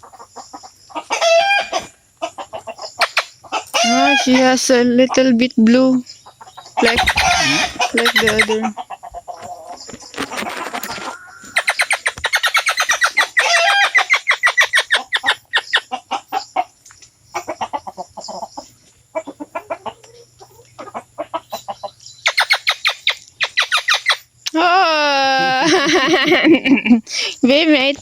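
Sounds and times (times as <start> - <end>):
bird calling in rapid notes: 6.8 - 8.7, 10.6 - 15.8
rustling: 9.4 - 12.0.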